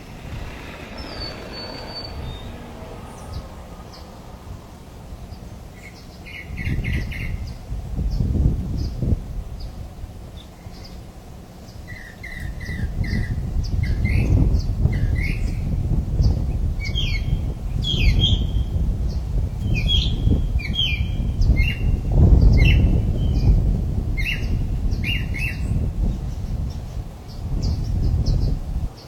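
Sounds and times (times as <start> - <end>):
birds chirping and squawking: 0.0 - 4.4
low rumble: 0.0 - 5.7.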